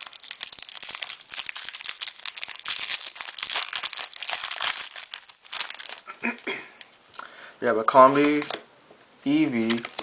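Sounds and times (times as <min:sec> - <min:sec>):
foil wrapper crinkling and tearing: 0:00.0 - 0:06.4, 0:09.6 - 0:10.0.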